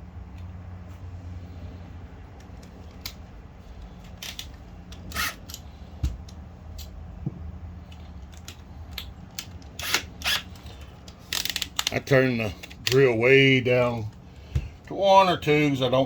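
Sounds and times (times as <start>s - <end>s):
steady low hum: 0.0s - 16.0s
pump parts clicking and scraping: 2.3s - 7.0s, 7.8s - 13.1s.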